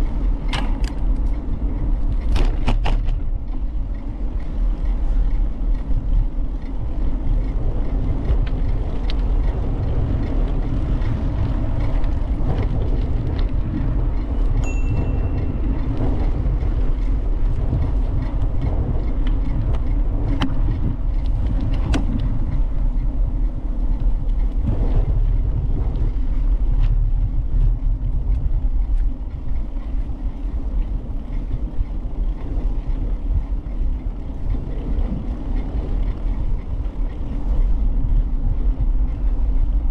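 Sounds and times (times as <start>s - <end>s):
bicycle tyre noise: 0.0s - 39.9s
wind on microphone: 0.0s - 39.9s
brief high tone: 14.6s - 15.4s.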